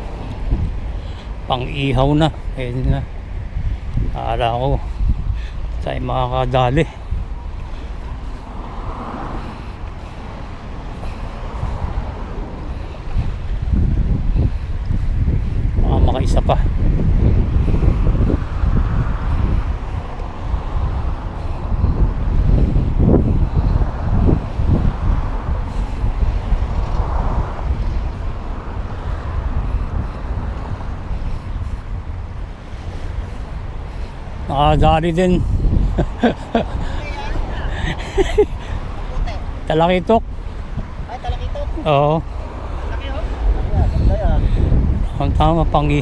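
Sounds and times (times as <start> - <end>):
steady low rumbling: 0.0 - 41.1
wind buffeting microphone: 0.0 - 46.0.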